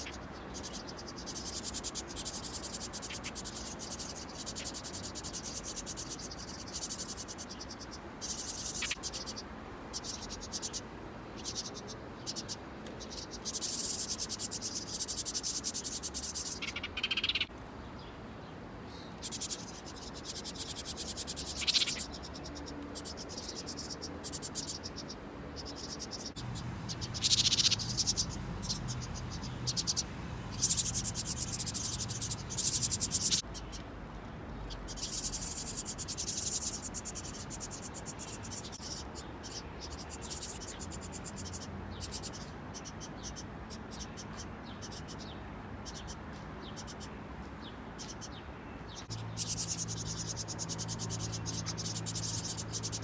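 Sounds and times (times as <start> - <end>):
crickets chirping: 25.6 - 33.4.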